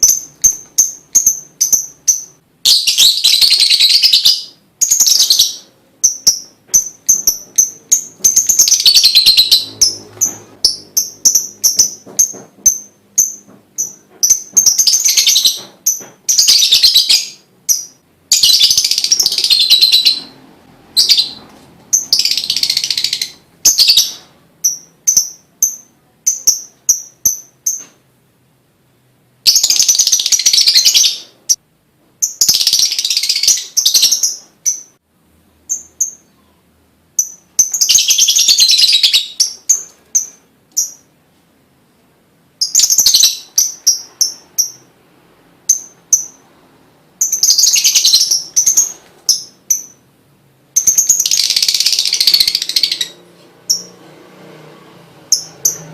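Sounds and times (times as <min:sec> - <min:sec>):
bird chattering trills: 0:00.0 - 0:20.4
sharp bird chips: 0:00.0 - 0:20.4, 0:47.2 - 0:50.0, 0:50.8 - 0:54.0.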